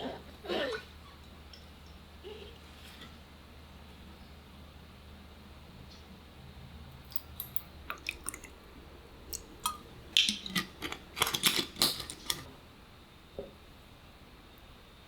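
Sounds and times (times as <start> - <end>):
small objects clicking and clattering: 9.6 - 12.5.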